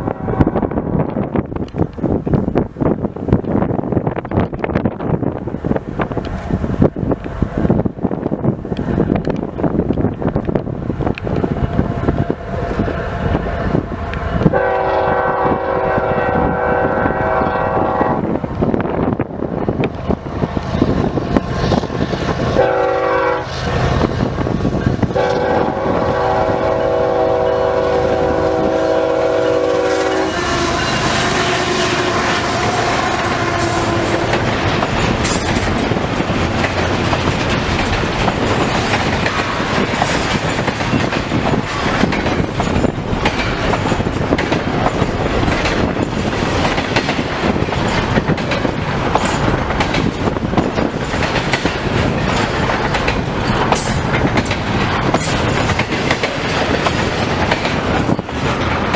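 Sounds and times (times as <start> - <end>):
locomotive air horn blasts: 0.0 - 1.1, 13.6 - 18.3, 22.5 - 23.8, 25.1 - 34.4
strong wind noise: 0.0 - 58.9
train wheels clacking on rails: 1.0 - 58.9.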